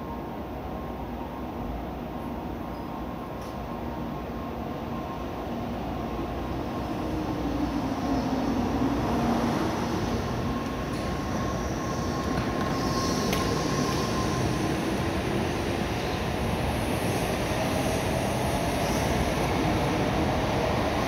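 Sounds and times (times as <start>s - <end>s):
train wheels rumbling: 6.7s - 21.0s.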